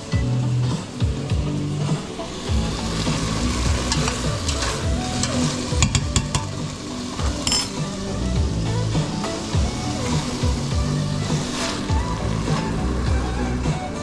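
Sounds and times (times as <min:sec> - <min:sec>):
food sizzling in a pan: 0:00.0 - 0:14.0
utensil clicking against pan: 0:03.8 - 0:08.0.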